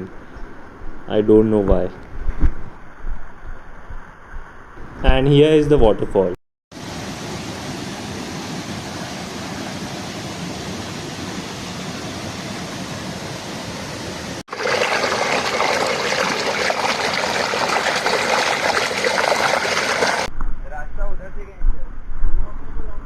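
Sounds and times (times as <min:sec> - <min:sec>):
waterfall rushing over rocks: 0:06.8 - 0:20.3.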